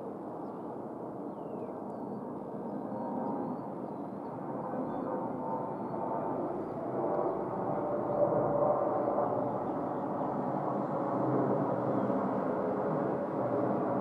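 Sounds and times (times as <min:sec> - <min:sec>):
distant jet engines roaring: 0:00.0 - 0:14.0.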